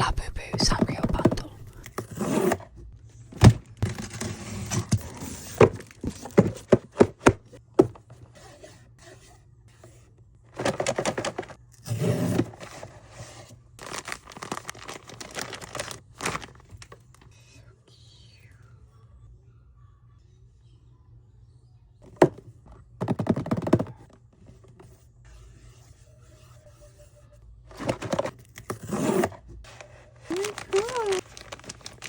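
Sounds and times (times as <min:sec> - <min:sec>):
packaging scraped and torn: 0:13.8 - 0:16.9, 0:27.8 - 0:32.0
tearing and rustling: 0:13.8 - 0:17.0, 0:29.1 - 0:32.0.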